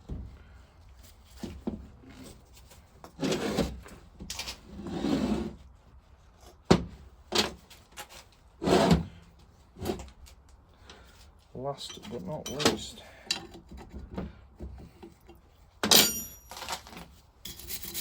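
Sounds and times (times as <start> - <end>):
parts knocking and clunking: 11.8 - 17.1.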